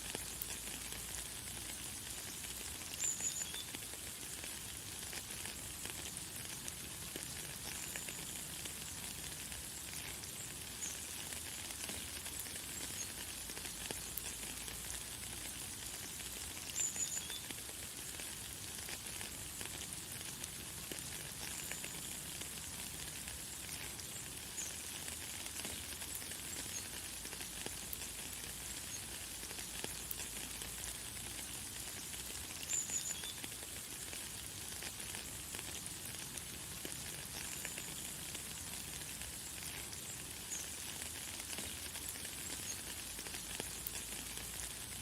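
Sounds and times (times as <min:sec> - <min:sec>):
light rain falling: 0:00.0 - 0:45.0.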